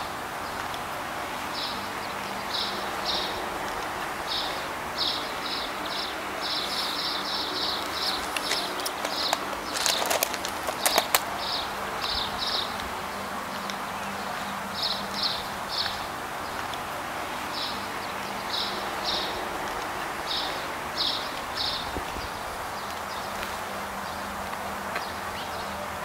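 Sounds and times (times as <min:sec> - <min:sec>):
background hiss: 0:00.0 - 0:26.0
small birds chirping: 0:01.5 - 0:25.8
sharp clicks: 0:07.8 - 0:11.3.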